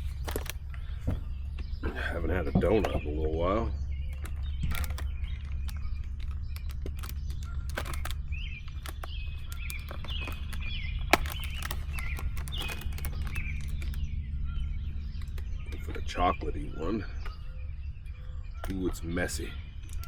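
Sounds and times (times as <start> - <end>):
small clicks and rustles: 0.0 - 0.7, 4.1 - 14.1
songbirds chirping: 0.0 - 20.0
steady low hum: 0.0 - 20.0.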